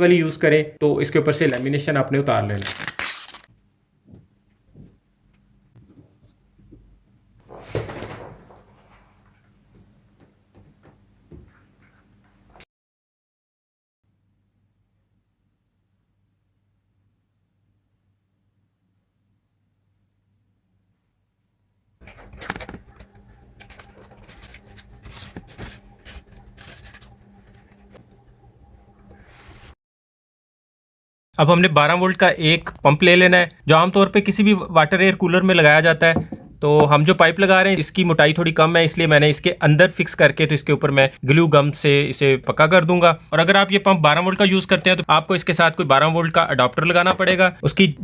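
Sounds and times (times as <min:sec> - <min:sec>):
plastic crinkling and tearing: 0:02.5 - 0:03.5, 0:22.0 - 0:27.7
plastic sheet rustling scrape: 0:07.4 - 0:09.4, 0:22.0 - 0:28.0, 0:29.1 - 0:29.8.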